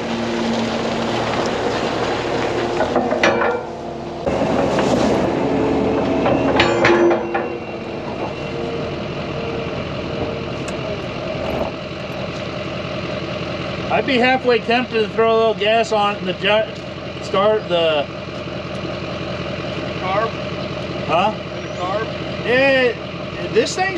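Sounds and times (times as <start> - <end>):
vehicle engine running: 0.0 - 23.9
metallic clanks and rattles: 2.5 - 12.7.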